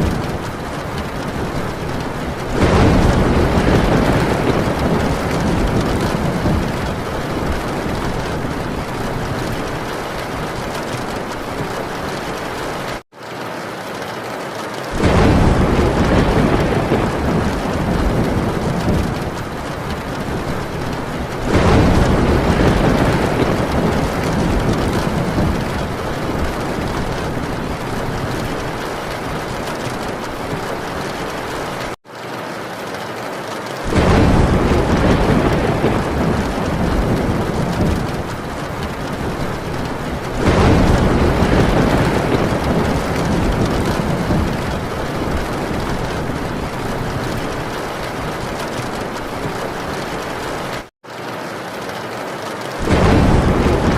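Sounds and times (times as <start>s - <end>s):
low rolling thunder: 0.0s - 13.0s, 15.0s - 32.0s, 33.8s - 50.9s, 52.8s - 53.9s
heavy rain on a tin roof: 0.0s - 53.9s.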